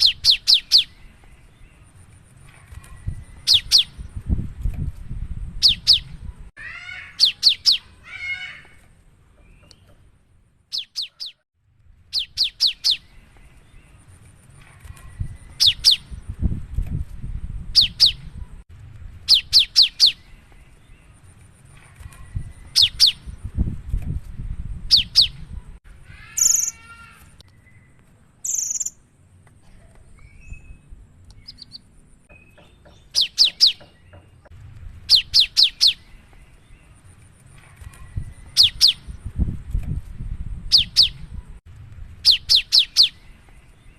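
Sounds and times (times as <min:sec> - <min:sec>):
bird harsh scratchy calls: 0:05.6 - 0:08.9, 0:26.1 - 0:27.4, 0:28.4 - 0:29.0.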